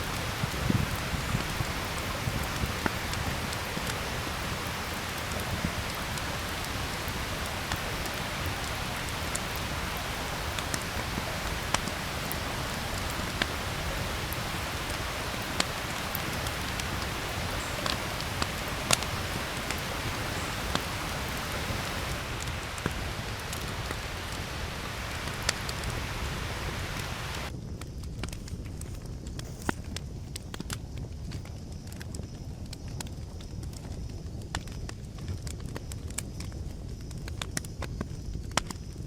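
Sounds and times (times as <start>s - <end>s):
raindrop ticks: 0.0s - 27.5s
steady rain falling: 0.0s - 27.5s.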